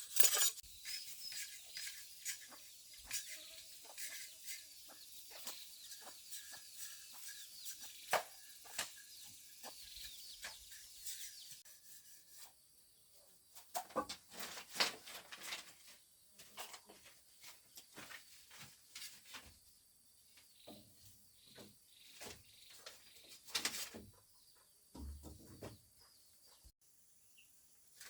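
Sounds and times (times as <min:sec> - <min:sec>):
chickens clucking and chirping: 0:00.7 - 0:11.6, 0:13.1 - 0:14.8.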